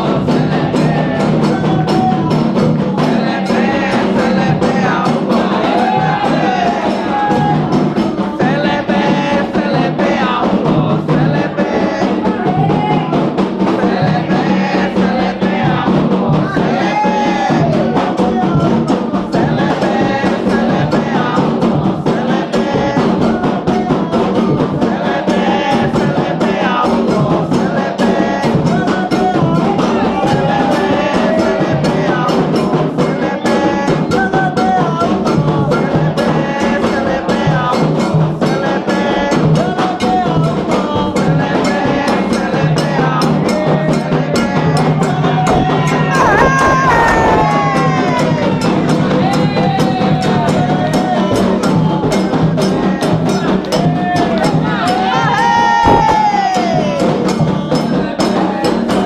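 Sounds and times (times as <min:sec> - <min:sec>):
group singing: 0:00.0 - 0:59.0
hand drums playing: 0:00.0 - 0:59.0.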